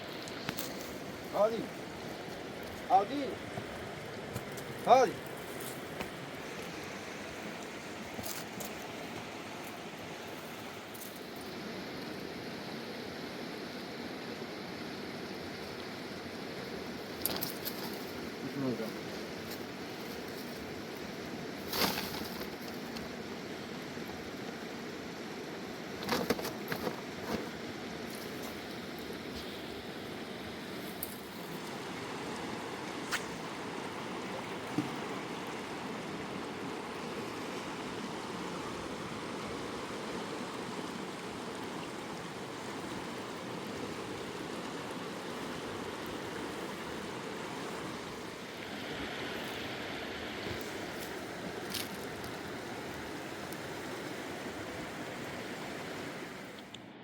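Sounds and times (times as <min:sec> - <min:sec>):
river water rushing: 0:00.0 - 0:21.7, 0:27.0 - 0:57.0.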